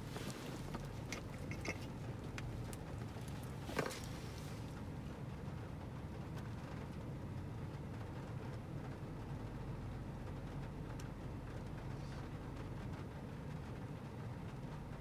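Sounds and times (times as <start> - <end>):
car cabin road rumble: 0.0 - 6.9.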